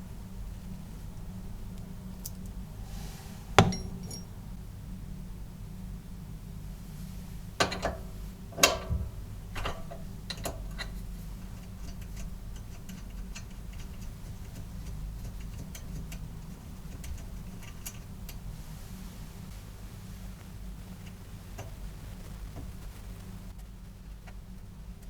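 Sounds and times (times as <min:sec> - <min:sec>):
steady low hum: 0:00.0 - 0:25.0
metal parts clinking: 0:03.6 - 0:04.3
light irregular ticks: 0:09.5 - 0:18.8, 0:19.5 - 0:25.0.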